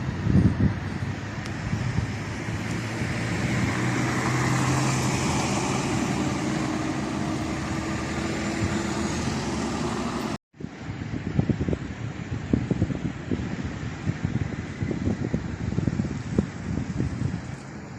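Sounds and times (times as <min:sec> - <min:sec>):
steady outdoor hiss: 0:00.0 - 0:17.9
vehicle passing: 0:01.0 - 0:10.4.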